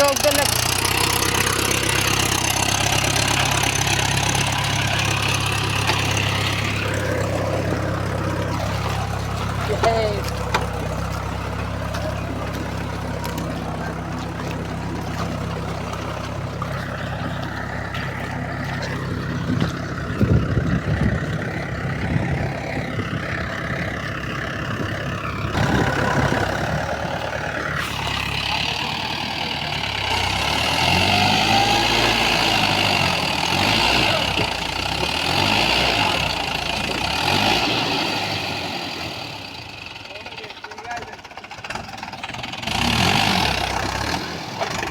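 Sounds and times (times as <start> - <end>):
tractor diesel engine revving: 0.0 - 44.9.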